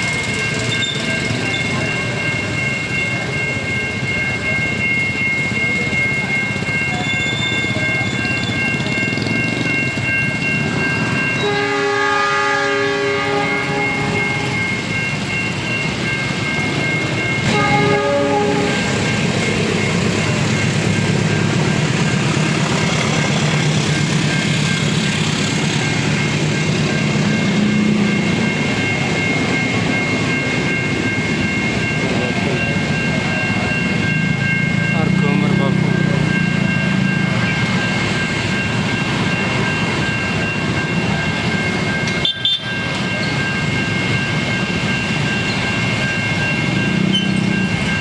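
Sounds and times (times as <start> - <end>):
level crossing warning siren: 0.0 - 48.0
train horn blast: 11.4 - 14.5, 17.5 - 19.0
train wheels clattering on rails: 13.4 - 48.0.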